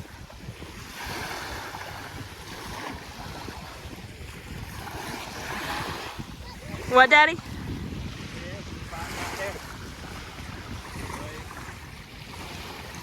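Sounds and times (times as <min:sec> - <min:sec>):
small waves washing on shore: 0:00.0 - 0:13.0
wind buffeting microphone: 0:00.0 - 0:13.0.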